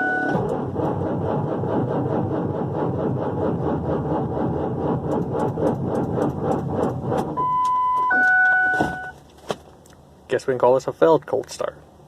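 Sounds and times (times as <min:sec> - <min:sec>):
diesel engine cranking on starter: 0:00.0 - 0:08.1.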